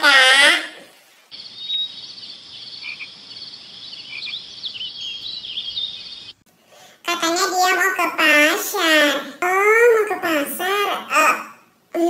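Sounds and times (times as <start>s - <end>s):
frogs and insects calling: 1.3s - 6.4s.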